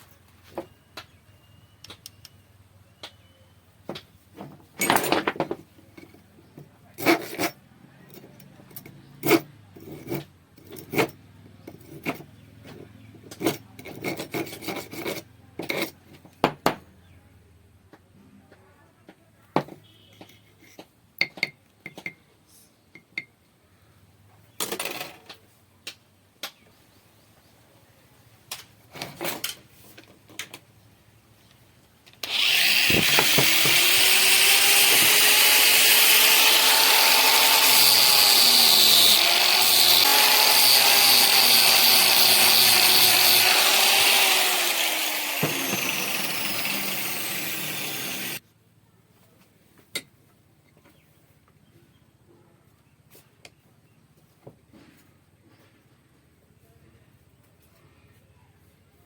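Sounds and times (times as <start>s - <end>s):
electric drill shaving wood: 32.2s - 48.4s.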